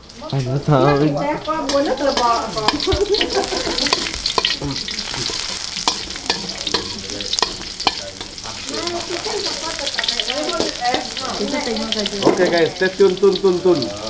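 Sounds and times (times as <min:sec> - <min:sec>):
food sizzling in hot oil: 0:00.0 - 0:14.0
metal spatula scraping wok: 0:00.7 - 0:14.0.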